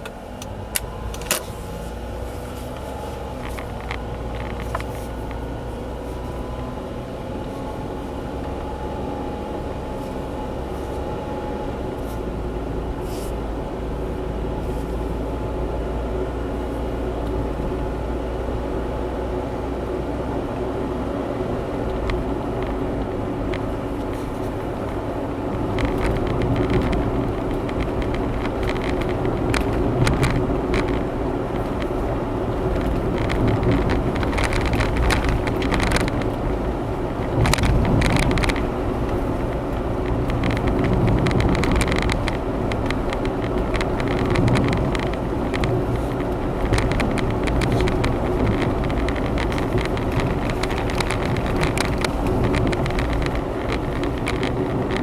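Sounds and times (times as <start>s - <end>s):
engine and road noise hum: 0.0s - 55.0s
short clicks and rattles: 22.0s - 55.0s.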